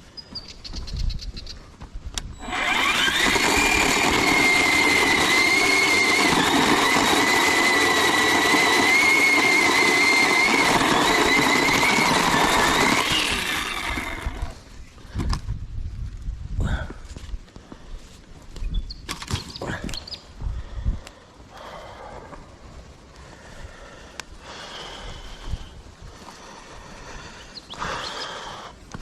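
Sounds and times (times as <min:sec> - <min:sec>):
small motor whining: 0:02.3 - 0:14.7.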